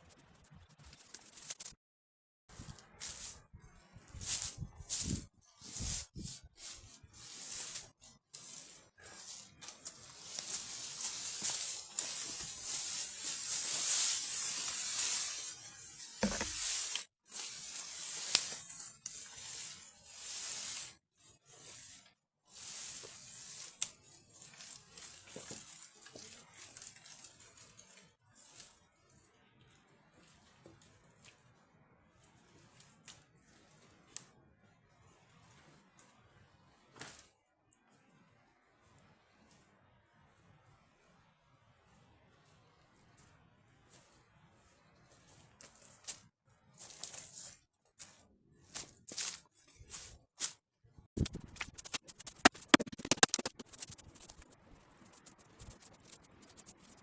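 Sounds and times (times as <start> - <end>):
rustling and crackling: 2.5 - 29.3, 41.8 - 50.6, 51.2 - 57.0.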